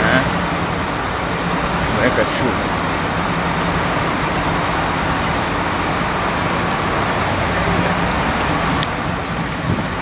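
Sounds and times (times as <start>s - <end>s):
bus and traffic engines rumbling: 0.0s - 10.0s
constant low hum: 6.6s - 10.0s.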